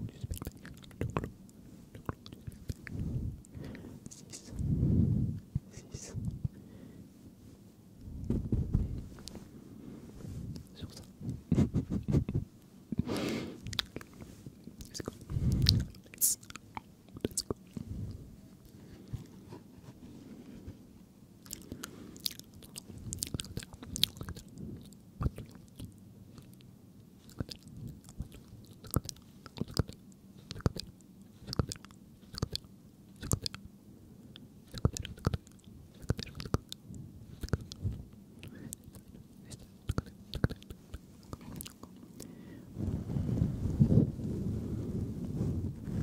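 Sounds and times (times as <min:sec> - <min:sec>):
wet mouth clicks and smacks: 0:13.6 - 0:14.2, 0:25.2 - 0:33.6, 0:34.7 - 0:36.8, 0:37.4 - 0:37.8, 0:38.4 - 0:42.0.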